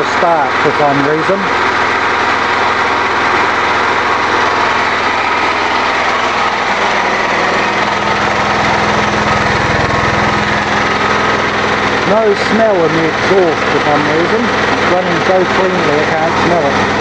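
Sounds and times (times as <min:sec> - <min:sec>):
low hum: 0:00.0 - 0:17.0
small engine running: 0:00.0 - 0:17.0.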